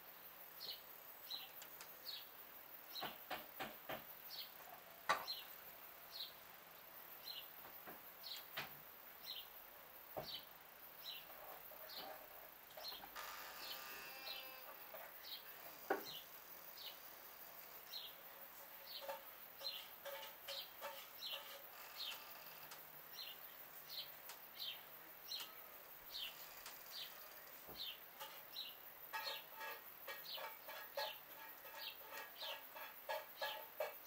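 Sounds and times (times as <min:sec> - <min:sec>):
small bird chirping: 0:10.2 - 0:34.0
hens clucking: 0:29.1 - 0:34.0.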